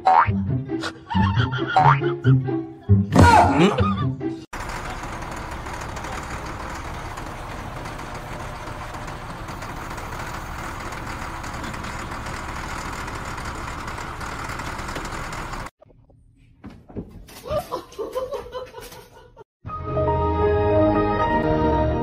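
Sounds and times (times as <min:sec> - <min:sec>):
diesel engine idling: 0:04.5 - 0:15.7.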